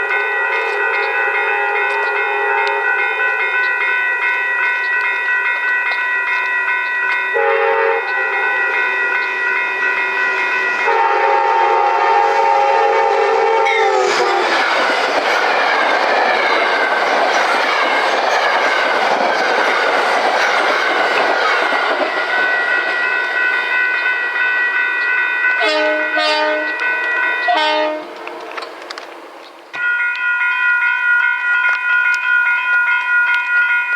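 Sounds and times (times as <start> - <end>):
train horn blasts: 0.6 - 3.2, 7.3 - 9.5, 10.2 - 14.4, 25.6 - 26.8, 27.4 - 28.6
train wheels rushing and clattering: 13.7 - 30.2.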